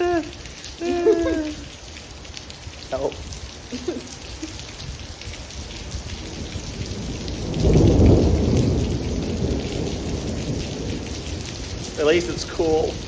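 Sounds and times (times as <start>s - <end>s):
heavy rain: 0.0s - 13.0s
thunder rumbling: 4.8s - 13.0s.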